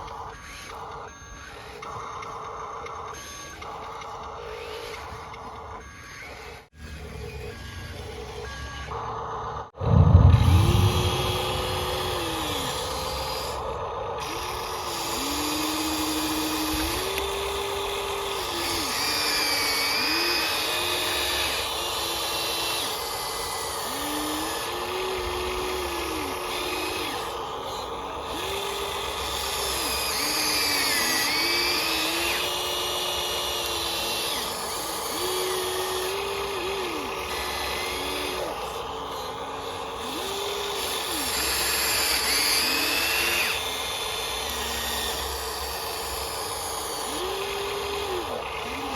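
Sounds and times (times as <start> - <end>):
toy gear motors whining: 0.0 - 48.9
high wavering tones: 9.8 - 14.5.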